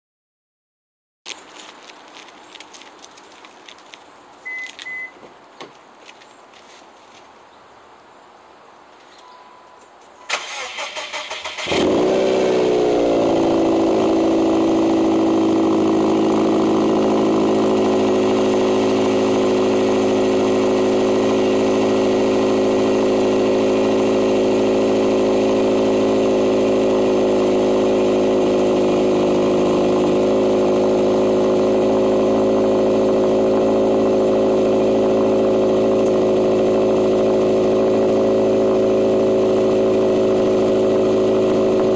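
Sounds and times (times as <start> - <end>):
starter cranking engine: 10.3 - 11.9
car engine idling: 10.3 - 41.9.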